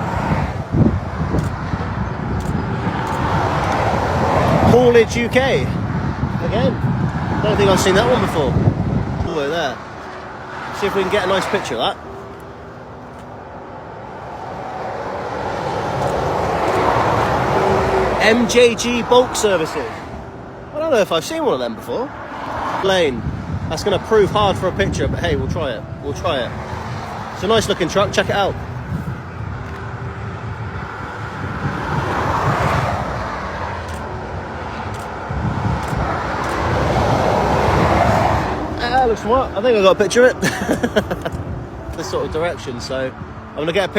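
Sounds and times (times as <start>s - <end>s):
wind on microphone: 0.0s - 11.2s, 22.4s - 39.8s
lorry passing: 0.0s - 43.9s
motorway traffic: 0.0s - 43.9s
lorry approaching: 25.9s - 43.6s.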